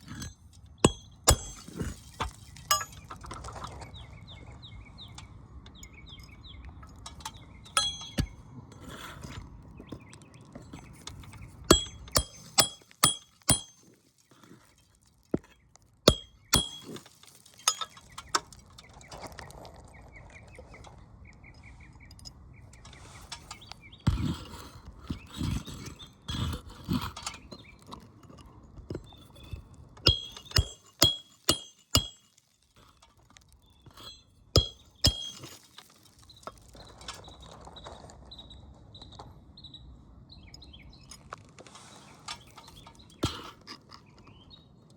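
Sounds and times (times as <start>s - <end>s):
dull hammer thuds: 0.1s - 2.0s, 11.7s - 13.8s, 16.1s - 17.0s, 30.1s - 32.2s, 34.0s - 35.5s
hammer blows ringing on metal: 0.9s - 1.6s, 7.8s - 8.4s, 11.7s - 13.7s, 16.1s - 16.9s, 30.1s - 32.2s, 34.0s - 35.4s.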